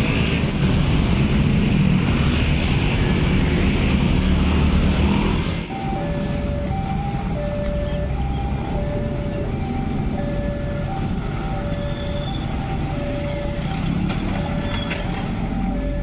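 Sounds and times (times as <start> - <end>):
road traffic rumble: 0.0 - 16.0
two-tone level crossing alarm: 5.7 - 16.0.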